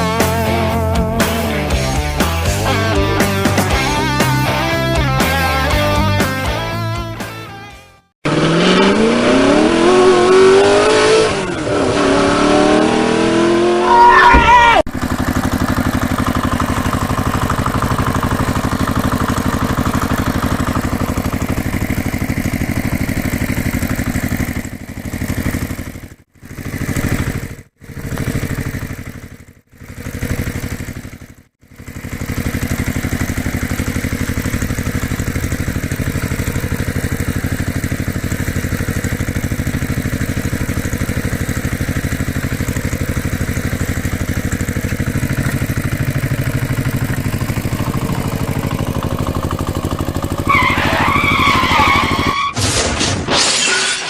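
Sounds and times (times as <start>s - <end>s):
engine idling: 0.0s - 7.6s, 14.8s - 52.4s.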